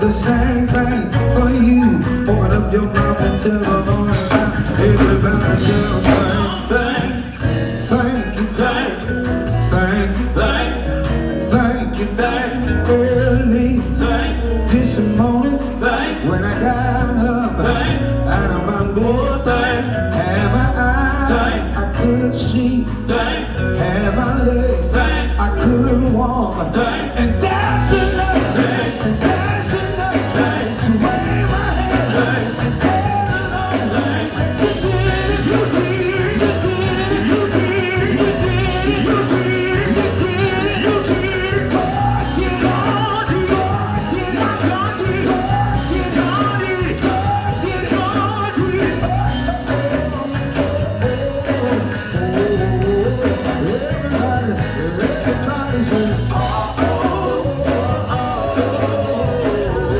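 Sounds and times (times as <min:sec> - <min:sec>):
steady drumbeat: 0:00.0 - 0:10.3, 0:27.4 - 0:59.9
gospel band playing: 0:00.0 - 0:59.9
person singing: 0:00.0 - 0:59.9.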